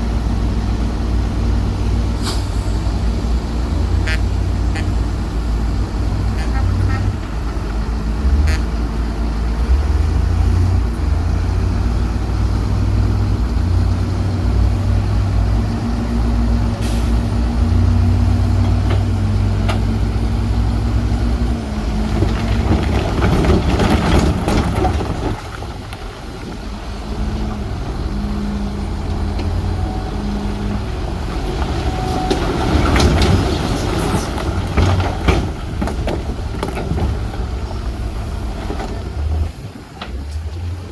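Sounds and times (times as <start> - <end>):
heavy machinery engines: 0.0 - 40.9
loud machinery clatter: 22.0 - 26.1, 31.3 - 37.7.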